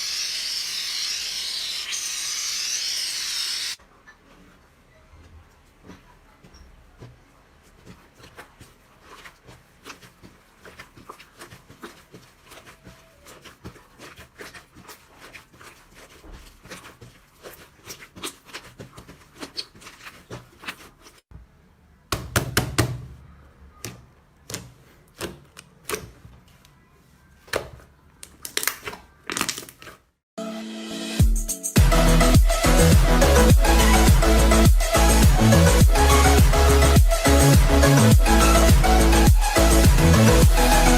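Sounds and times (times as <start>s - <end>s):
crunchy material crackling: 5.8s - 21.3s.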